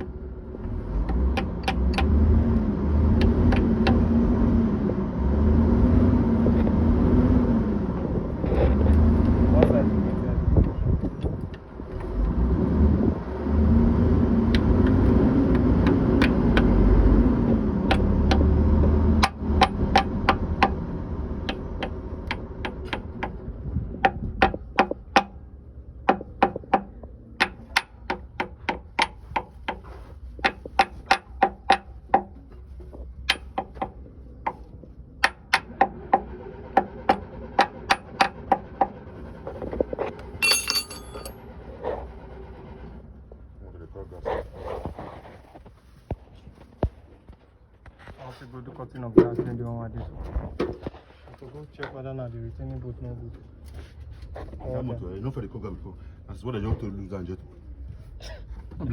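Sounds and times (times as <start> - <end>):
vehicle engine running: 0.0 - 24.2
hammer striking metal: 40.4 - 41.4
metallic jingle: 40.4 - 41.4.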